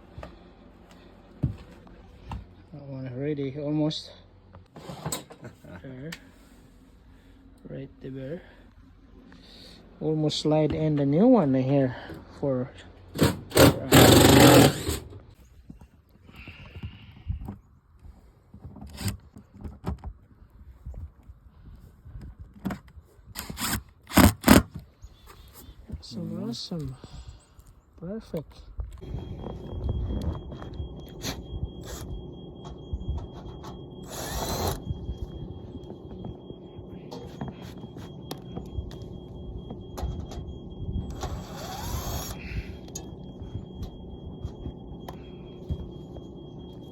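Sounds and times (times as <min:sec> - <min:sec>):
power drill running: 0:13.2 - 0:15.2, 0:23.4 - 0:24.6, 0:29.0 - 0:46.9.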